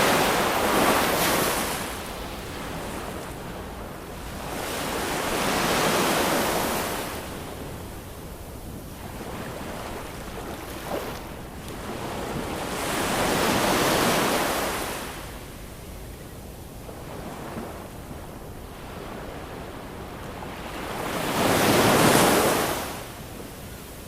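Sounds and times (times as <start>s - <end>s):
ocean waves surging: 0.0s - 7.2s
surf washing: 0.0s - 15.1s.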